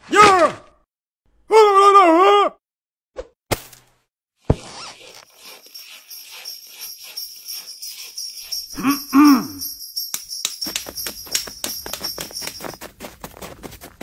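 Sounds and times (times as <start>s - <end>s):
sleigh bells shaking: 5.2s - 13.9s.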